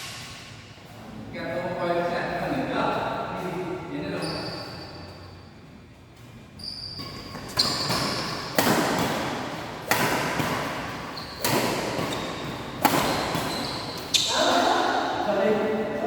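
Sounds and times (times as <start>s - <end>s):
racket striking shuttlecock: 7.0s - 14.6s.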